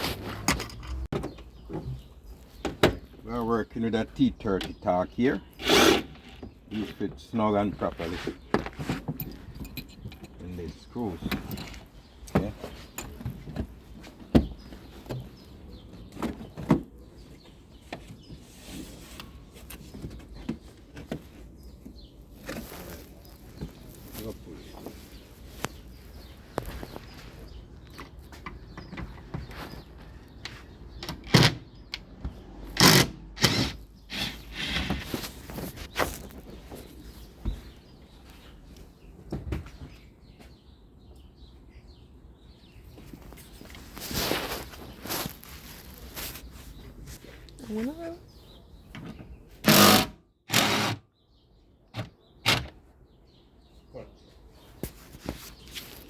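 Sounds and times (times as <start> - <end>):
metal parts scraping and clunking: 0.0 - 1.1
tools clicking and knocking: 9.1 - 10.4
power tool running: 49.6 - 51.0.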